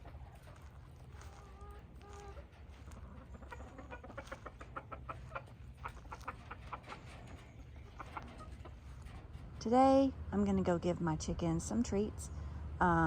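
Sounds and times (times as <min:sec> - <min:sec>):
hens clucking: 0:00.0 - 0:09.4
faint low rumble: 0:00.0 - 0:13.0.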